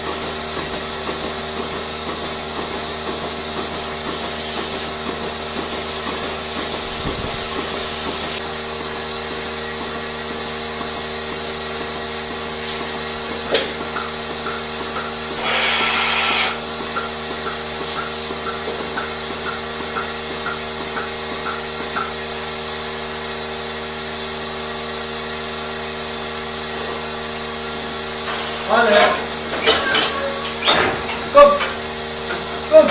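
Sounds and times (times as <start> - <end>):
machinery humming: 0.0 - 32.9
loud hiss: 15.3 - 16.6, 28.2 - 31.5.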